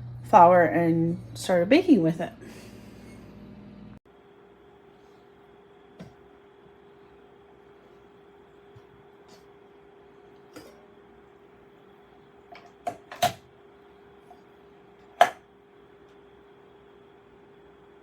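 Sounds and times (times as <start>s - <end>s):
hard objects clicking and knocking: 15.2s - 15.4s.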